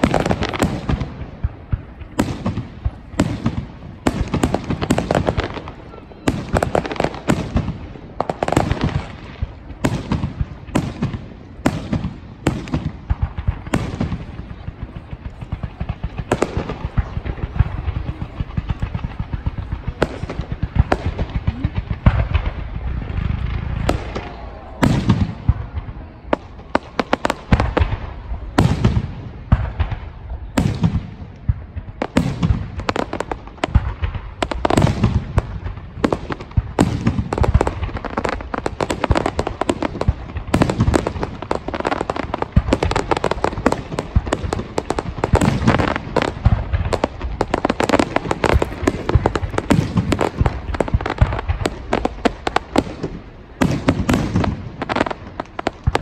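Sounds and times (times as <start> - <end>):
fireworks bangs: 0.0 - 56.0
fireworks crackling: 0.0 - 56.0.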